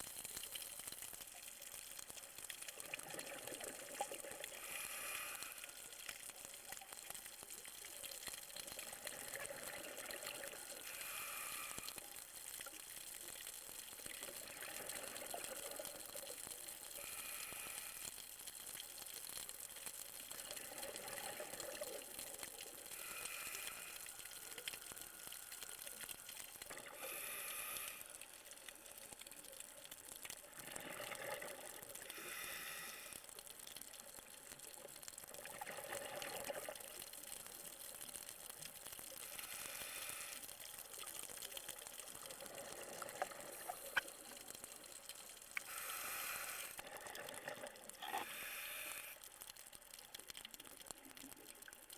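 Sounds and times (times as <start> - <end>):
exhaled bubbles burbling: 2.7 - 4.6, 8.8 - 10.9, 30.5 - 32.2, 35.3 - 37.0, 42.1 - 44.9, 46.8 - 48.4
regulator hissing inhale: 4.4 - 6.0, 10.6 - 12.1, 17.0 - 18.2, 22.8 - 29.1, 32.0 - 33.3, 39.2 - 40.6, 45.6 - 46.8, 48.1 - 49.3.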